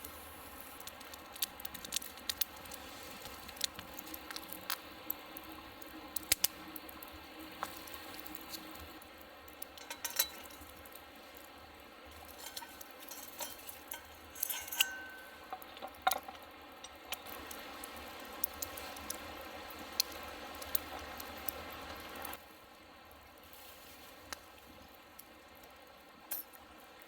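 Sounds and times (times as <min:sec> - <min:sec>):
soft sizzling hiss: 0:00.0 - 0:27.0
cookware and tableware clinking: 0:09.8 - 0:10.7, 0:12.2 - 0:17.0.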